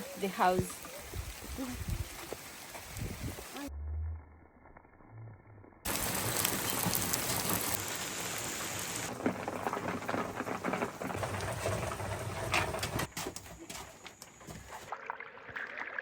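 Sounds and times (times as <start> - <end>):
steady rain falling: 0.0 - 3.7, 5.9 - 12.0
raindrops ticking on a surface: 5.9 - 11.2.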